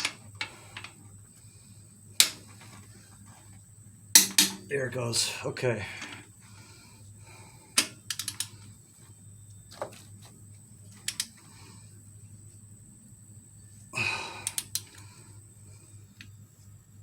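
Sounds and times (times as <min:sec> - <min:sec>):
torque wrench clicks and metal taps: 0:04.2 - 0:04.6, 0:07.8 - 0:08.6, 0:10.9 - 0:11.3, 0:14.4 - 0:15.1
heavy breath: 0:05.8 - 0:07.8, 0:13.9 - 0:15.4.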